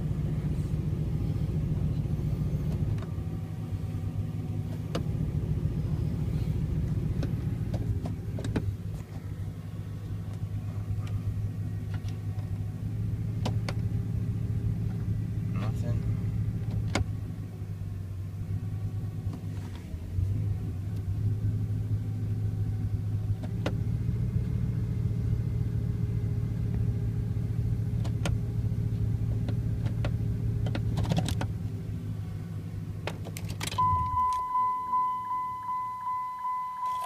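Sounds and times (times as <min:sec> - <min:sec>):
truck engine running: 0:00.0 - 0:37.0
transmission whine: 0:33.6 - 0:37.0.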